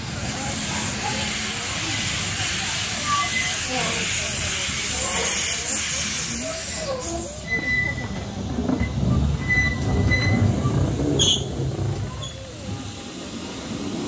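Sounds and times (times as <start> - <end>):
train rumbling on rails: 0.0 - 14.0
high wheel squeal: 3.0 - 3.6, 5.5 - 12.6.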